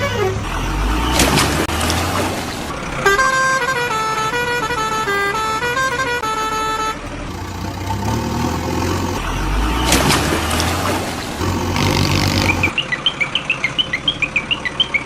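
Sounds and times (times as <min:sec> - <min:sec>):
electronic horn tune: 0:00.0 - 0:12.7
steady engine-like noise: 0:00.0 - 0:15.0.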